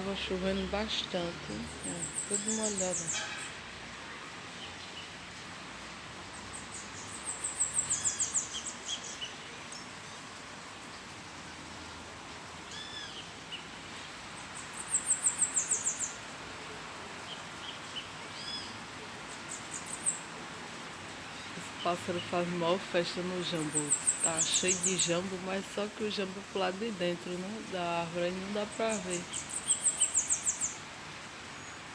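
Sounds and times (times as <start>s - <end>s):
faint steady hiss: 0.0s - 31.9s
songbird singing high notes: 1.5s - 3.6s, 23.2s - 30.8s.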